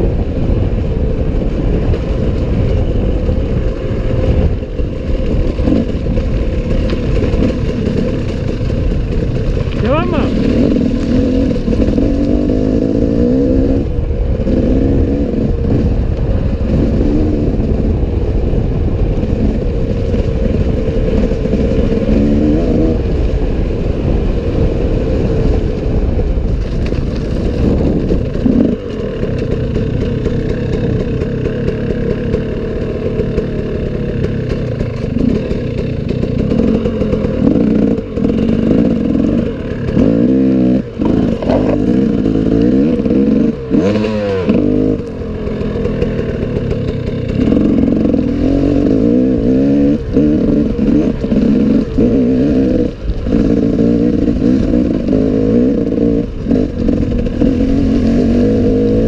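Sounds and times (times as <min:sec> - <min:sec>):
dirt bike engine revving: 0:01.2 - 0:26.2, 0:27.2 - 0:59.0
bike clattering over rough ground: 0:04.5 - 0:12.1.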